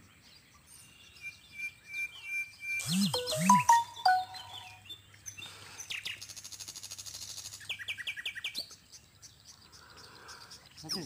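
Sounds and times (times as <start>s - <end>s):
birds chirping and calling: 0.0s - 6.2s, 7.6s - 11.0s
fast ticking bird trill: 2.6s - 4.8s.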